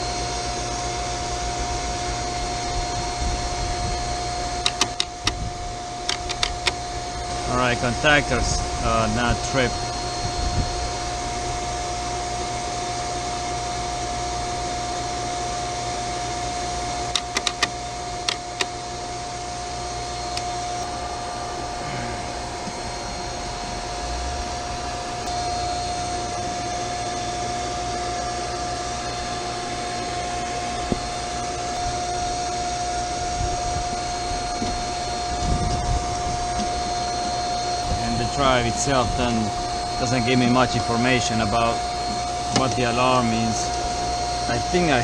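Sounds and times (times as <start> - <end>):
machinery fan noise with high whine: 0.0 - 45.0
sharp clicks: 4.6 - 5.4, 6.0 - 6.8, 17.1 - 18.7.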